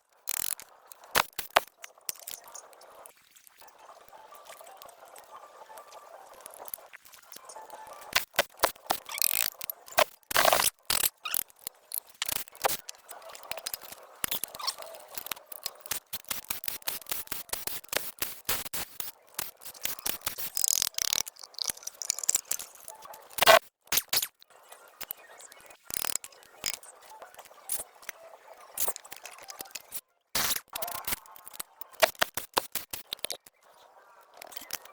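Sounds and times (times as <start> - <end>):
sharp clicks: 0.3 - 2.8, 8.1 - 25.2, 28.8 - 33.5.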